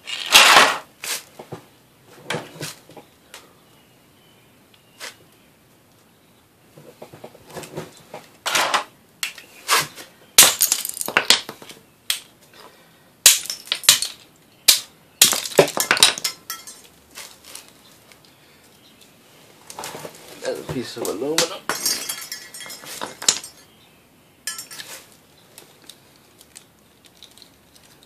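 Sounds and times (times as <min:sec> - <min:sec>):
light fixture cracking and snapping apart: 0:10.4 - 0:11.5, 0:13.2 - 0:16.9.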